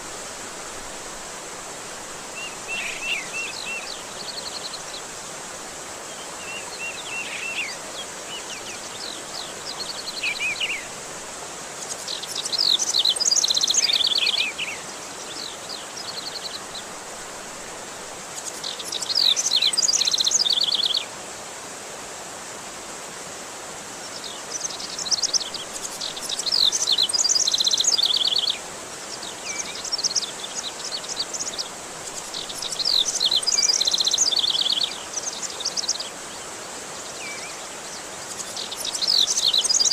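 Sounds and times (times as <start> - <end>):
flowing water: 0.0 - 39.9
songbird whistles and trills: 29.4 - 36.1, 38.3 - 39.9.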